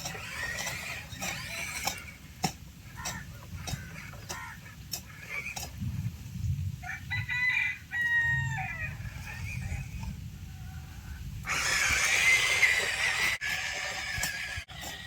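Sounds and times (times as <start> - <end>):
rooster crowing: 6.8 - 9.0.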